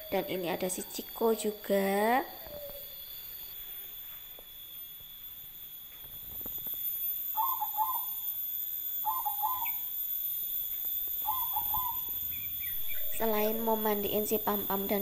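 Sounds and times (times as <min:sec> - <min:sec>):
bird hooting: 0:00.0 - 0:03.1, 0:07.3 - 0:08.4, 0:09.0 - 0:10.0, 0:11.1 - 0:15.0
high-pitched whine: 0:00.0 - 0:15.0.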